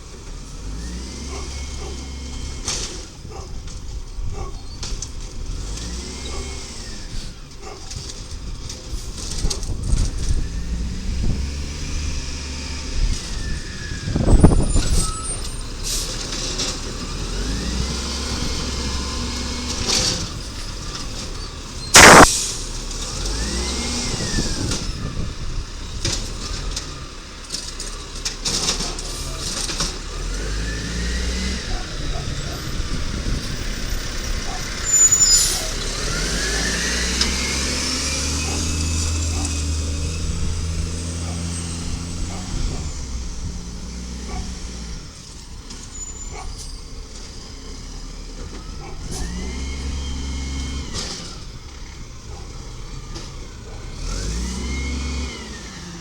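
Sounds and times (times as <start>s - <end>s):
garbage truck engine revving: 0.0s - 56.0s
air brake hiss: 22.0s - 22.7s.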